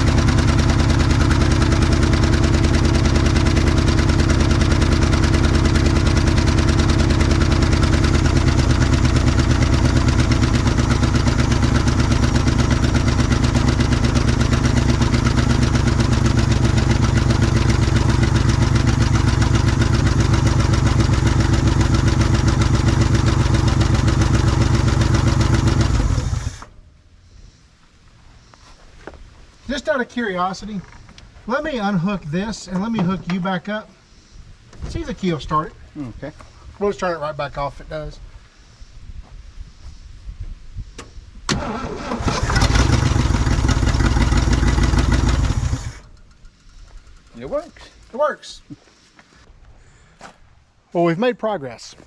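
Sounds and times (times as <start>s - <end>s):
engine idling: 0.0s - 26.8s, 41.5s - 48.2s.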